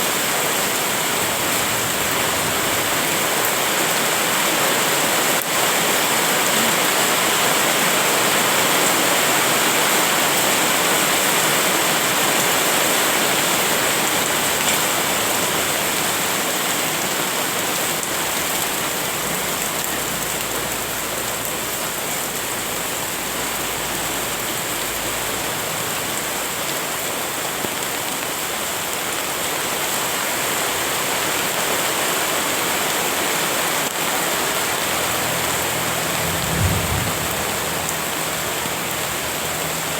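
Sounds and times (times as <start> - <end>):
rain pattering: 0.0 - 39.9
faint low rumble: 36.0 - 38.7.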